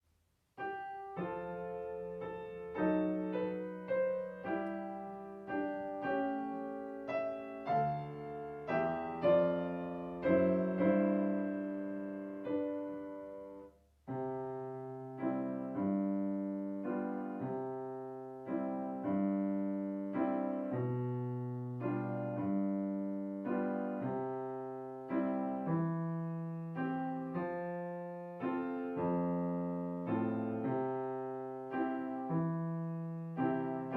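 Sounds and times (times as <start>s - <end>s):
solo piano accompaniment: 0.0s - 33.9s.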